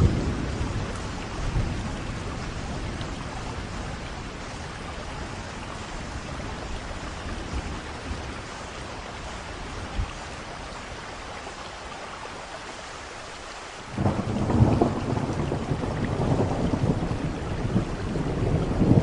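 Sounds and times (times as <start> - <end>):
thunder rumbling: 0.0 - 8.5, 13.9 - 19.0
steady rain falling: 0.0 - 19.0.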